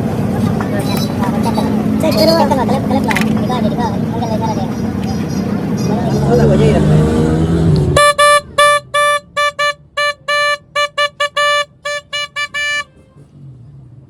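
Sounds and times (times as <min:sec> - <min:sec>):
electric horn beeps: 0:08.0 - 0:13.0.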